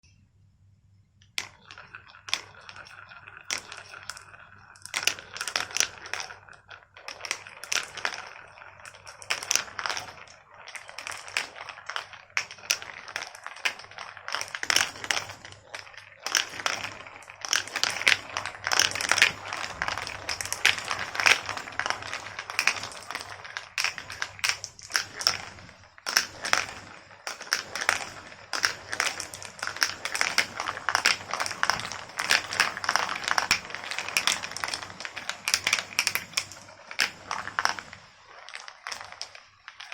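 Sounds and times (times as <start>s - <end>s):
marbles clattering down tracks: 1.2s - 39.9s.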